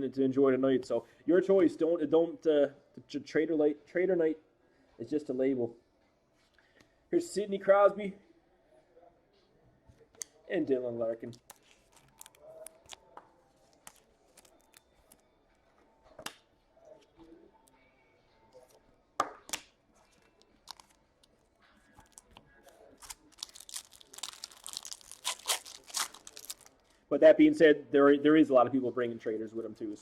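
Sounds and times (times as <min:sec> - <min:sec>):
wrapper crinkling and tearing: 0:11.4 - 0:13.1, 0:13.7 - 0:15.2, 0:20.2 - 0:26.9.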